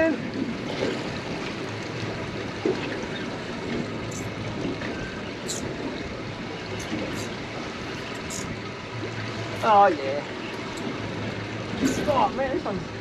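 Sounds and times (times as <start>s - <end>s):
water lapping around boat hull: 0.0s - 13.0s.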